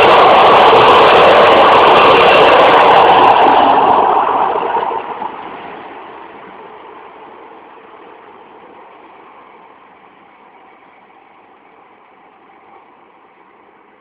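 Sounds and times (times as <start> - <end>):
train running past: 0.0 - 14.0.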